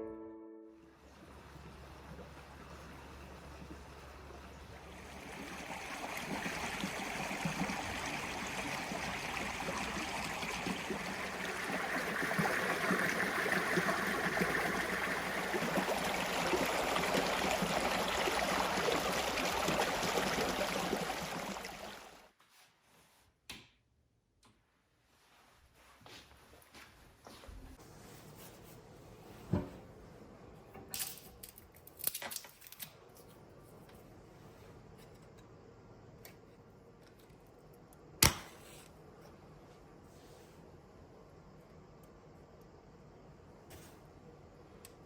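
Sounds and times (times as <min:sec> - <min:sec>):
stream babbling over stones: 0:04.6 - 0:22.2.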